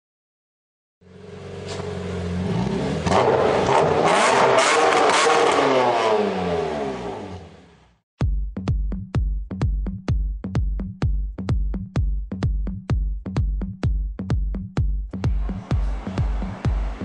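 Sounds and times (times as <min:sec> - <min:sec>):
car engine revving: 0:01.0 - 0:08.0, 0:15.2 - 0:17.0
electronic dance beat: 0:08.2 - 0:17.0.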